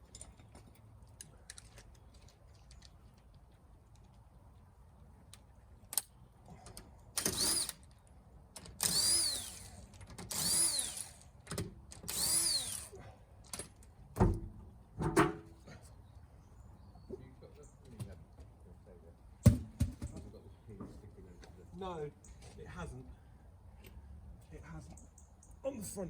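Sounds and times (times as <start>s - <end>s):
power tool driving bolts: 7.2s - 7.8s, 8.6s - 12.9s.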